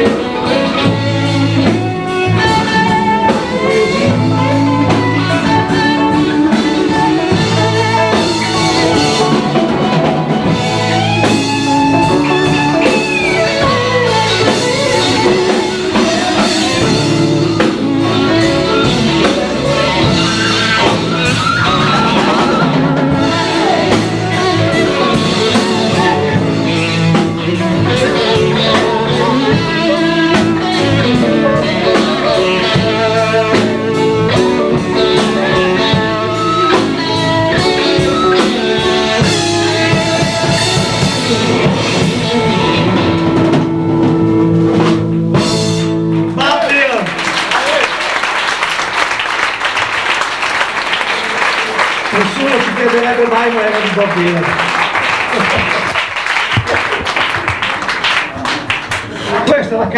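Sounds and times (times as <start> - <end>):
electric guitar bending lines: 0.0 - 46.4
live blues-rock band: 0.0 - 59.9.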